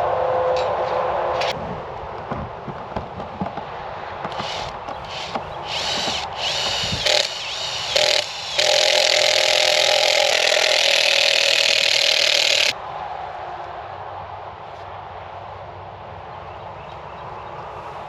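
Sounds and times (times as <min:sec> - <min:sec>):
power drill boring into wood: 0:04.3 - 0:12.8.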